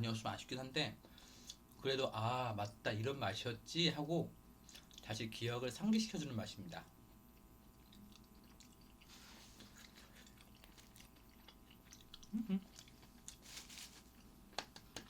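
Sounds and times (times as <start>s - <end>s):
closed-mouth hum: 3.6s - 13.4s
person chewing: 4.6s - 5.1s, 7.2s - 15.0s
wet mouth clicks: 9.7s - 13.0s.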